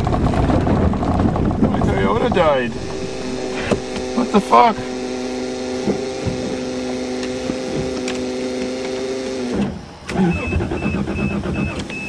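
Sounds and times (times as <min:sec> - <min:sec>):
low rumble: 0:00.0 - 0:08.2
steady humming tone: 0:00.0 - 0:10.0.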